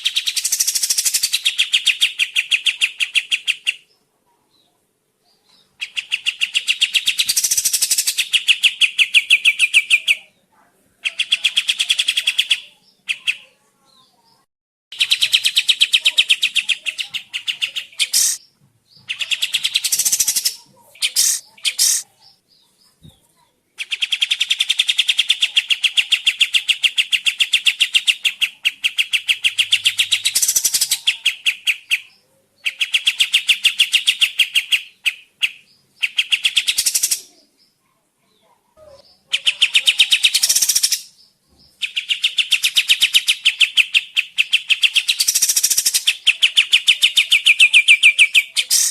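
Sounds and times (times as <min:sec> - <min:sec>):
songbird fast rattling trills: 0:19.3 - 0:22.0.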